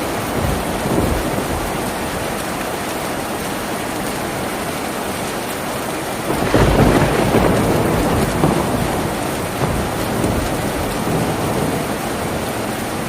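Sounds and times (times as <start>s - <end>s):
heavy rain on a tin roof: 0.0s - 13.0s
low rumble of thunder: 0.2s - 2.4s, 6.3s - 13.0s.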